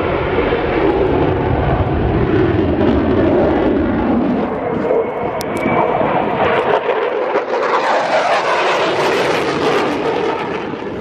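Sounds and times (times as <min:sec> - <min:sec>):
aircraft flying past: 0:00.0 - 0:11.0.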